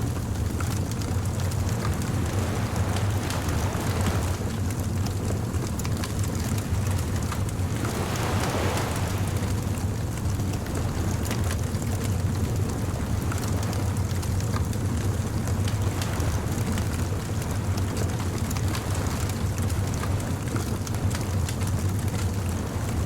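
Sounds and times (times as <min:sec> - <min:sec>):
bonfire crackling: 0:00.0 - 0:13.8
ocean surf washing in: 0:00.0 - 0:23.0.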